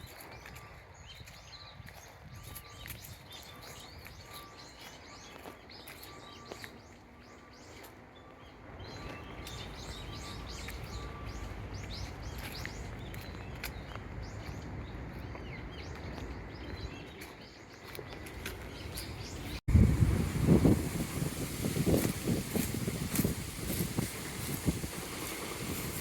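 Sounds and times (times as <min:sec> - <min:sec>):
small birds chirping: 0:00.0 - 0:19.7.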